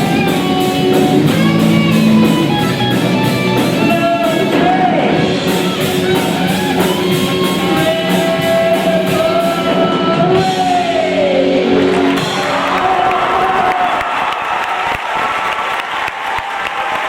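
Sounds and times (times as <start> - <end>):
electric guitar: 0.0 - 13.7
live rock band playing: 0.0 - 13.8
drums: 0.0 - 17.0.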